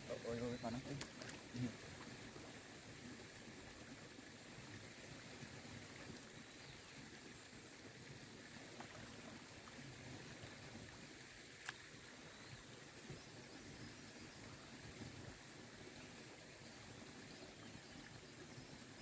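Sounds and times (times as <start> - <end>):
water trickling and lapping: 0.0 - 19.0.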